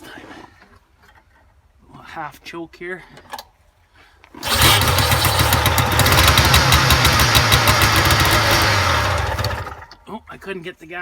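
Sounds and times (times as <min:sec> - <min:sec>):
snowmobile engine starting and running: 0:04.4 - 0:10.1.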